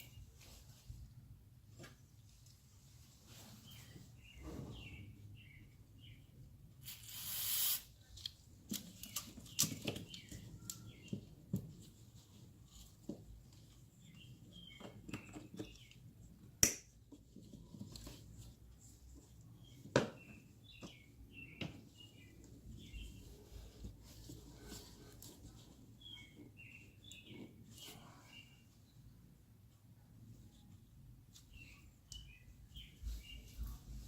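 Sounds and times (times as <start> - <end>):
hiss: 6.8 - 7.9
small birds chirping: 13.1 - 16.4, 19.0 - 29.3, 31.3 - 34.0.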